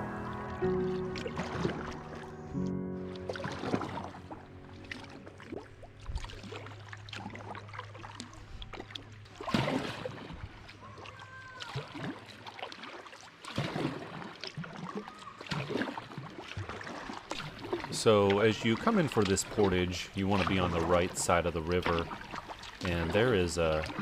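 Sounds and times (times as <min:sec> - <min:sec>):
paddle blades splashing water: 0:00.0 - 0:24.0
water dripping: 0:14.4 - 0:24.0.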